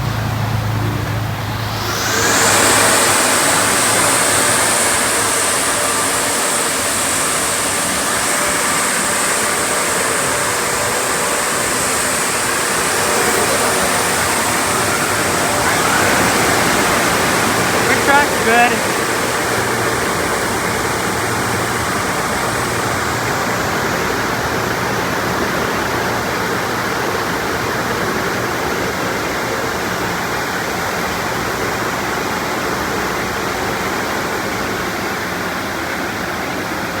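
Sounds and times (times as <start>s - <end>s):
water spray rushing: 0.0s - 35.0s
low machine hum: 0.0s - 35.2s.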